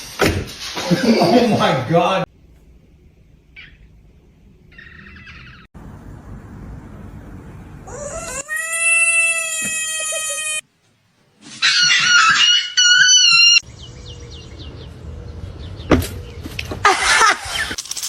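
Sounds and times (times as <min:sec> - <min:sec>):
high-pitched animal call: 0:04.7 - 0:05.7, 0:07.9 - 0:10.6, 0:11.5 - 0:13.6
harsh wavering animal screech: 0:11.5 - 0:13.6.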